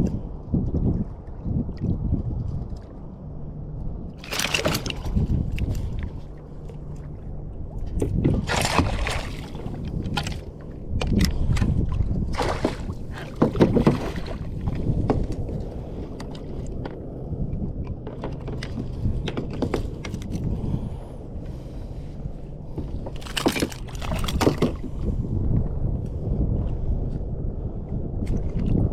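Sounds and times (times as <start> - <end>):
low wind rumble: 0.0 - 28.9
water slapping against kayak hull: 4.2 - 6.2, 8.0 - 10.5, 11.1 - 15.4, 23.1 - 25.0.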